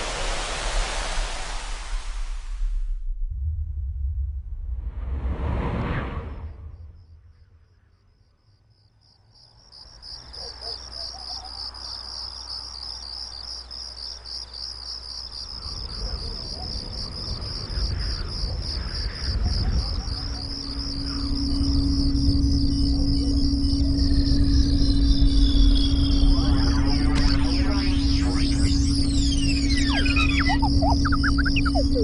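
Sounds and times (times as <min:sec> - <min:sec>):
low rumble: 0:01.0 - 0:08.0, 0:21.2 - 0:32.0
crickets chirping: 0:06.2 - 0:32.0
steady low hum: 0:20.2 - 0:32.0.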